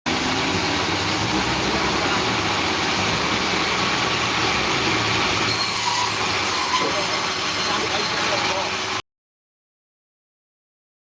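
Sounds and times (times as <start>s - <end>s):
sawmill engine humming: 0.1s - 9.0s.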